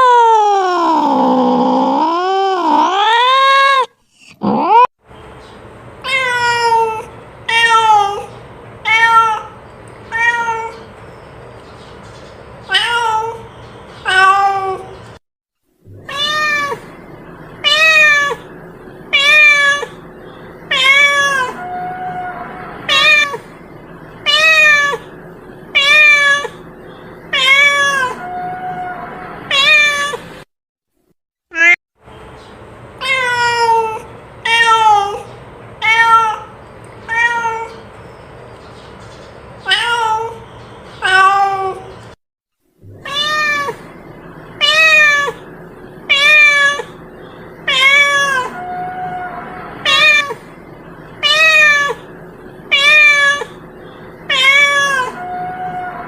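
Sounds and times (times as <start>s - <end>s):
cat meowing: 6.1s - 10.9s, 14.0s - 15.0s, 15.9s - 16.9s, 17.6s - 18.4s, 19.1s - 20.0s, 20.7s - 23.4s, 24.2s - 25.1s, 25.8s - 26.6s, 27.3s - 30.2s, 33.0s - 36.5s, 37.1s - 37.8s, 39.6s - 40.4s, 41.0s - 41.9s, 42.9s - 43.9s, 44.6s - 45.5s, 46.1s - 47.0s, 47.6s - 50.4s, 51.2s - 52.1s, 52.7s - 53.6s, 54.2s - 56.0s.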